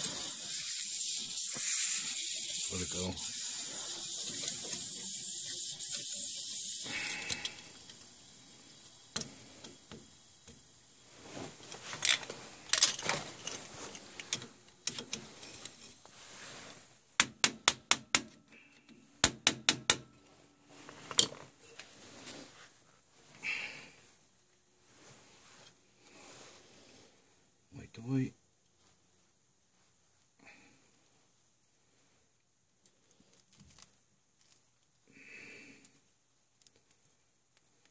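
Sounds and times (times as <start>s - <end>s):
air and water hissing from vent: 0.0s - 16.9s.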